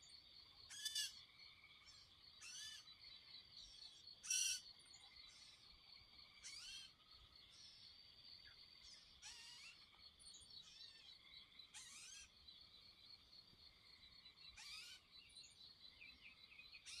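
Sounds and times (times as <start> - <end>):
short bird calls: 0.7 - 1.2, 9.2 - 9.8, 11.7 - 12.3, 14.5 - 15.1.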